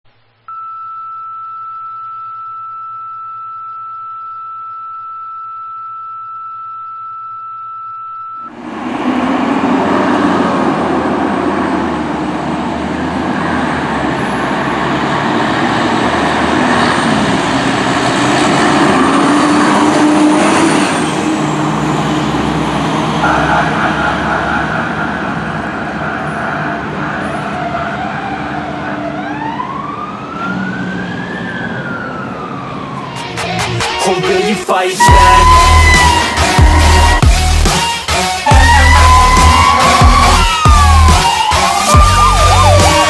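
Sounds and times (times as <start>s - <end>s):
diesel engine running: 8.5s - 33.8s, 35.0s - 43.0s
street noise: 8.5s - 43.0s
steady high tone: 20.9s - 28.4s, 35.0s - 37.8s, 38.4s - 43.0s.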